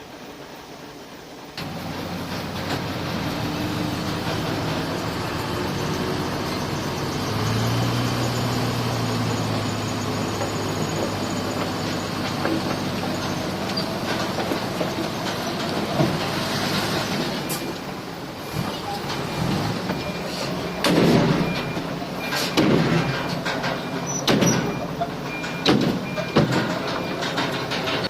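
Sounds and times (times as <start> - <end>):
earthmoving machinery diesel drone: 1.4 - 28.0.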